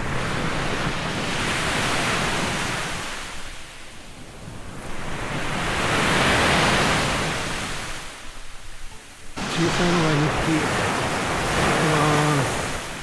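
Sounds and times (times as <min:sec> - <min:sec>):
surf breaking on a beach: 0:09.4 - 0:13.0.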